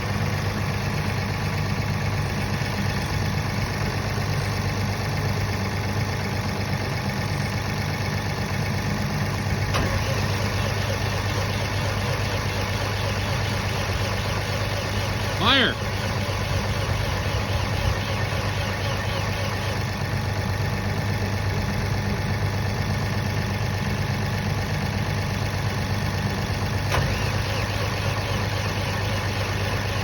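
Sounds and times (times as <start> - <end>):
diesel generator idling: 0.0 - 30.0.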